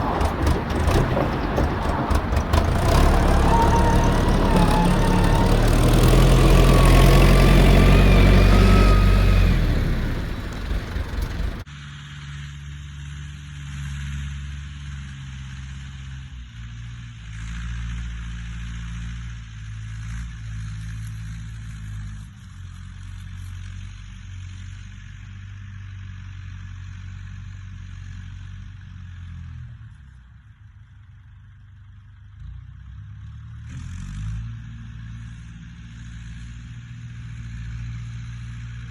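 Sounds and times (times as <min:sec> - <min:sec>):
tractor diesel engine running: 0:00.0 - 0:11.6.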